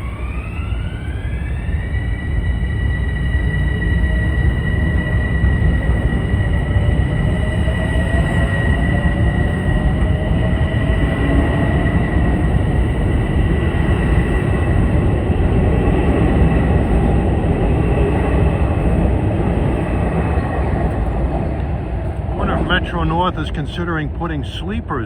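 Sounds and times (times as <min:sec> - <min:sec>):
faint high whine: 0:00.0 - 0:25.0
train wheels rumbling: 0:00.0 - 0:25.0.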